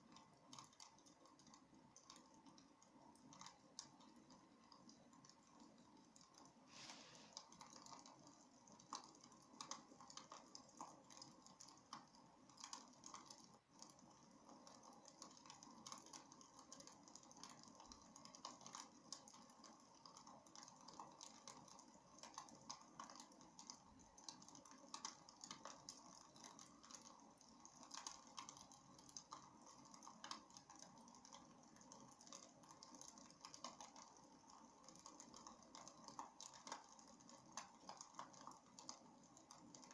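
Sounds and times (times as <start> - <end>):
low steady hiss: 0.0 - 39.9.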